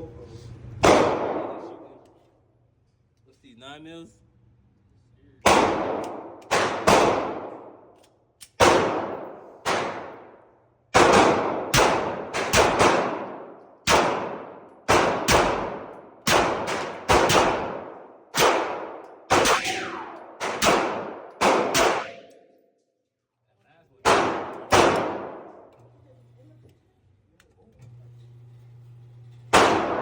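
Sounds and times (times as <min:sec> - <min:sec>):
pistol shots echoing: 0:00.8 - 0:01.9, 0:05.4 - 0:07.9, 0:08.6 - 0:10.4, 0:11.0 - 0:22.5, 0:24.0 - 0:25.7, 0:29.5 - 0:30.0.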